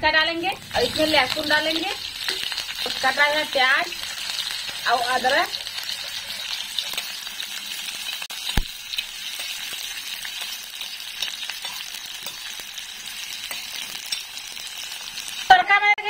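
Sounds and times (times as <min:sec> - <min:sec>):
vegetables sizzling in oil: 0:00.0 - 0:16.0
metal spoon scraping pan: 0:00.5 - 0:07.4.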